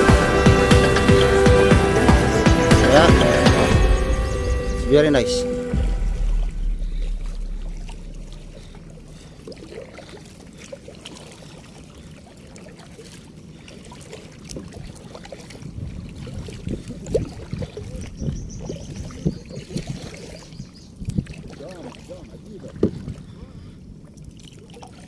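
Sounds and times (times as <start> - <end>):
low knocks and rubbing: 0.0 - 9.3
water splashing off paddles: 0.0 - 25.0.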